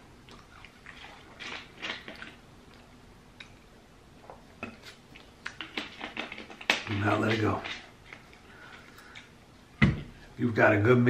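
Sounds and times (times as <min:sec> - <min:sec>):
chewing with wet mouth clicks: 0:00.3 - 0:03.7, 0:04.8 - 0:06.8.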